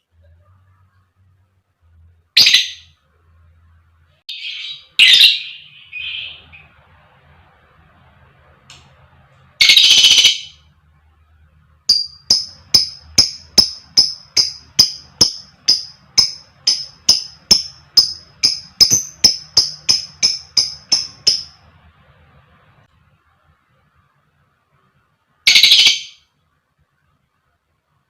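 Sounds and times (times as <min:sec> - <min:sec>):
lovebird chirps: 0:02.4 - 0:03.0, 0:04.3 - 0:06.8, 0:11.9 - 0:21.7, 0:25.5 - 0:26.3.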